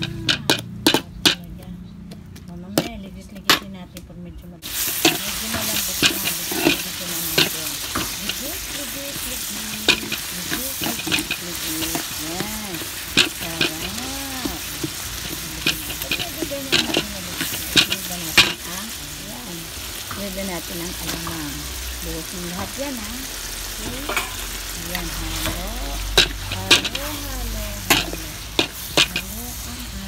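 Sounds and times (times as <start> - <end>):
metal spoon scraping a pan: 0.0 - 1.5, 4.7 - 19.0, 23.9 - 30.0
vegetables sizzling in hot oil: 4.6 - 30.0.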